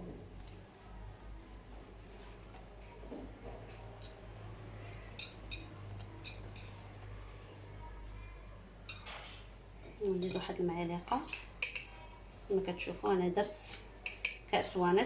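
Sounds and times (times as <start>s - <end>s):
batter stirred in a bowl: 0.0s - 7.7s, 13.6s - 14.5s.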